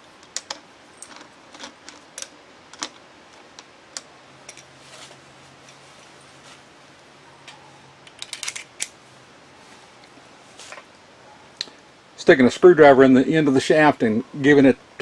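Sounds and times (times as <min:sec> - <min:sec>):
faint steady hum: 0:00.0 - 0:15.0
metal parts and tools clicking: 0:00.2 - 0:04.7, 0:07.4 - 0:09.0.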